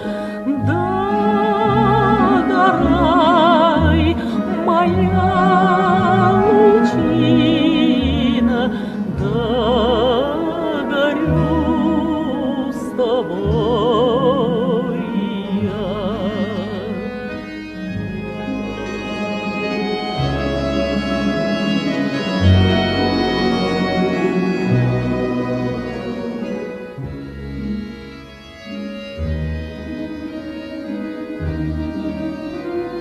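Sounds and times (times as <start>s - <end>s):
low instrumental chords: 15.0s - 33.0s.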